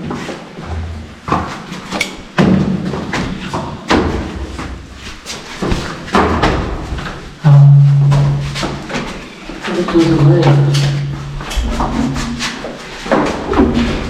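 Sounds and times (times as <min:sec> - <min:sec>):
knocks and thumps of tank: 0:05.6 - 0:09.1
loud low hum: 0:05.7 - 0:09.0, 0:09.7 - 0:12.6.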